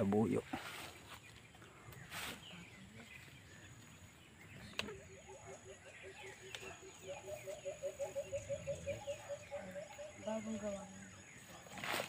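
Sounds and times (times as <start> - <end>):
faint bird chirps: 0.1 - 12.0
low hooting bird calls: 1.5 - 11.8
higher bird hoots: 4.9 - 10.6.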